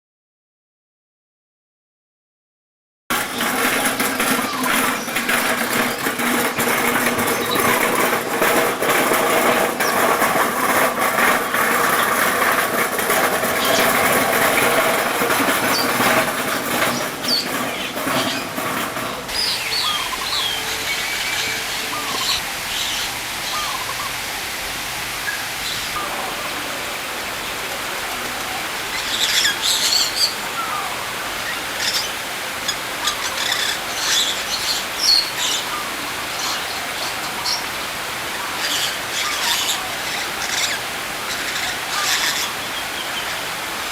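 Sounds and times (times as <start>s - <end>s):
busy background clatter: 3.1s - 22.4s
small birds chirping: 19.3s - 24.2s, 28.9s - 43.5s.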